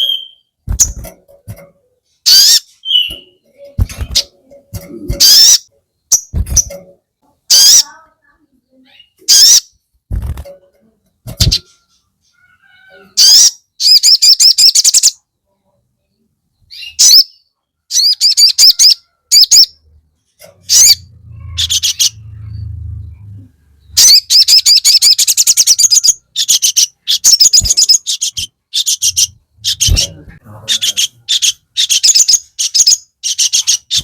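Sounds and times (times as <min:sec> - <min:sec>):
bird chattering song: 0:00.0 - 0:06.8, 0:07.4 - 0:09.8, 0:11.3 - 0:15.2, 0:16.2 - 0:34.0
soft low rumble: 0:21.0 - 0:24.0.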